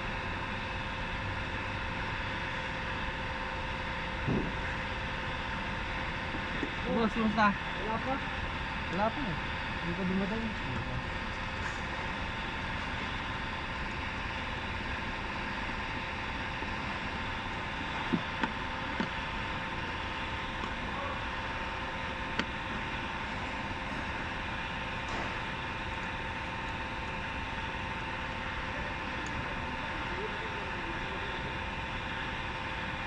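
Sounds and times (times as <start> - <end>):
mechanical hum with whine: 0.0 - 33.0.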